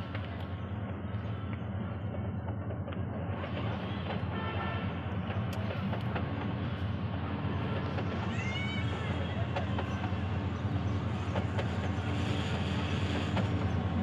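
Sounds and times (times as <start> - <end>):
diesel locomotive rumbling: 0.0 - 14.0.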